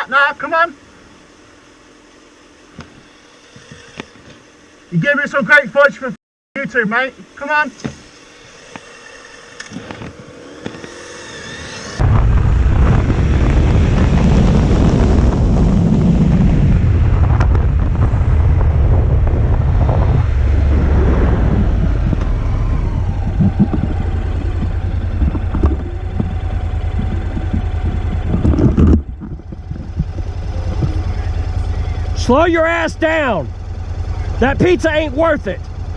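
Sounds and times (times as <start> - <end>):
motorcycle road noise: 7.2 - 35.9
wind buffeting microphone: 12.0 - 32.5.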